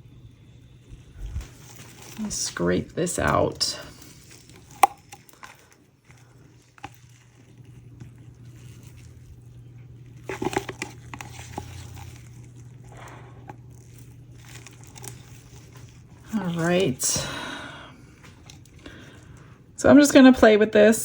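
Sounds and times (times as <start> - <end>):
low steady hum: 0.0 - 21.0
stick scraping mixing cup: 0.9 - 17.2.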